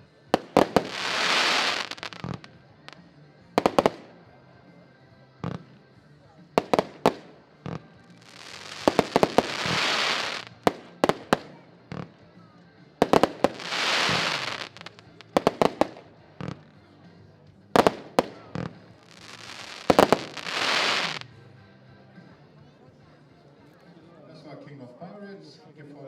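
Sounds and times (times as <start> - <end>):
firework hissing burst: 0.4 - 2.5, 8.2 - 10.5, 13.2 - 15.0, 17.8 - 21.2
firework launch bangs: 8.6 - 12.1, 13.0 - 16.6.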